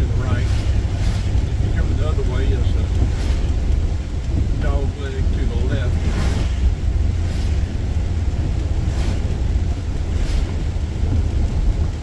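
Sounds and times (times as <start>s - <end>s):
car road noise rumble: 0.0s - 12.0s
tyre hiss on wet road: 0.2s - 1.5s, 3.0s - 4.0s, 5.9s - 11.2s
brief swishes: 6.0s - 7.7s, 8.9s - 9.3s, 10.2s - 10.6s.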